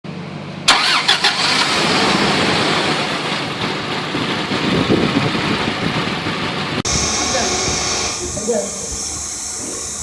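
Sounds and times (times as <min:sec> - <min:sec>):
motor running steadily: 0:06.8 - 0:10.0.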